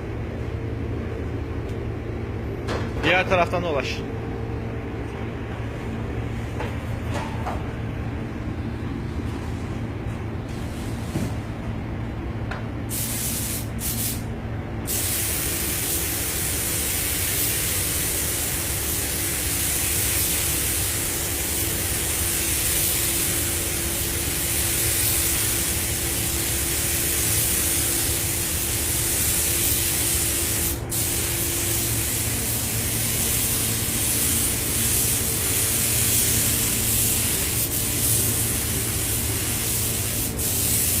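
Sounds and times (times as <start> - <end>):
steady low hum: 0.0 - 41.0
paint spray gun hissing: 12.9 - 14.2, 14.9 - 41.0.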